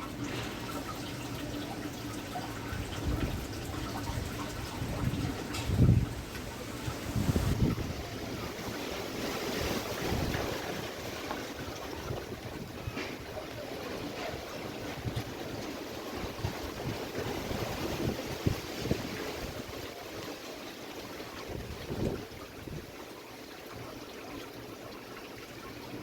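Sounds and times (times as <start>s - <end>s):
wind buffeting microphone: 2.5s - 20.3s, 21.3s - 23.0s
strong gusty wind: 2.7s - 20.0s, 21.3s - 22.9s.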